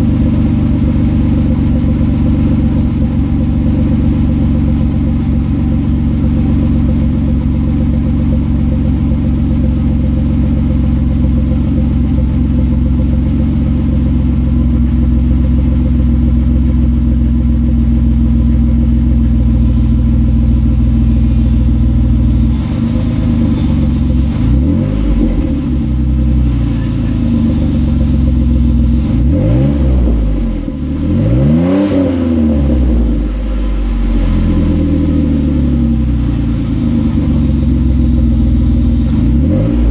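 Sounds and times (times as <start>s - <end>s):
car exhaust idling: 0.0s - 39.9s
engine revving: 18.2s - 39.9s.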